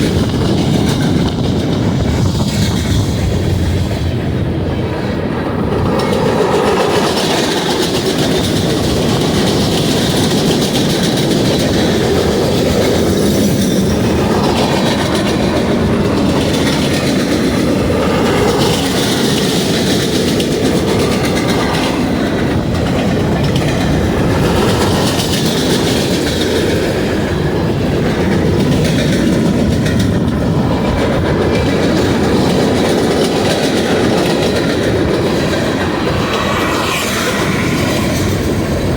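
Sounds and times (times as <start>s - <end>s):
freight train wheels on rails: 0.0s - 38.9s.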